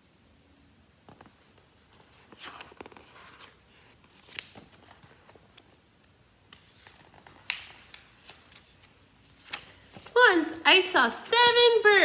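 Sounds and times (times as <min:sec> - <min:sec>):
paper pages rustling: 0:01.1 - 0:10.3
crisp paper ticks: 0:06.5 - 0:09.8.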